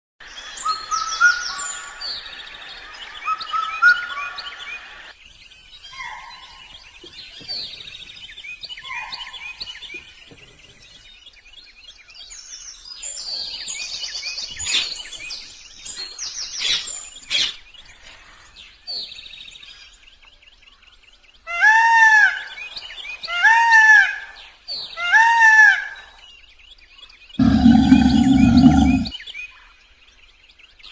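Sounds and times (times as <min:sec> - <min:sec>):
chattering bird trills: 0:27.4 - 0:29.1.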